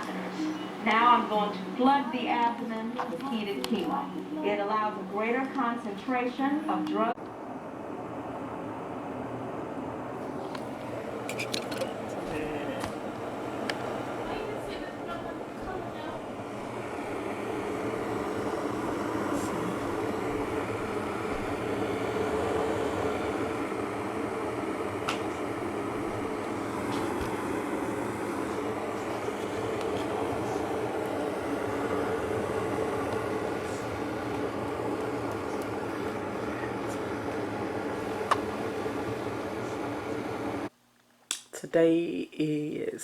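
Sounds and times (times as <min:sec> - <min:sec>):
electric kettle heating water: 0:00.0 - 0:40.7.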